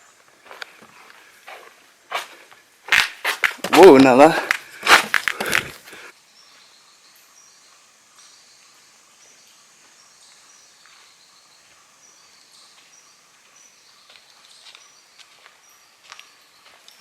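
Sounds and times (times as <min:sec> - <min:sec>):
soft footsteps: 0:00.2 - 0:06.0, 0:12.7 - 0:17.0.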